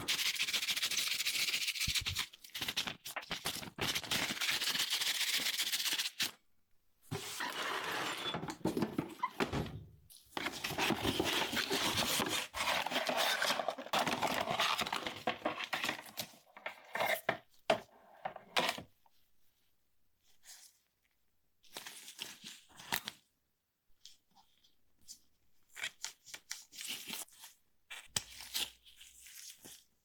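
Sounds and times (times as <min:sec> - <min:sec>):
rustling and scraping handling: 0:07.1 - 0:19.2.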